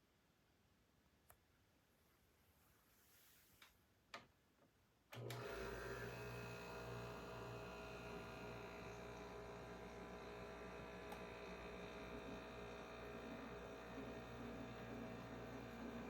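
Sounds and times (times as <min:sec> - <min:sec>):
dehumidifier humming: 0:06.4 - 0:16.0.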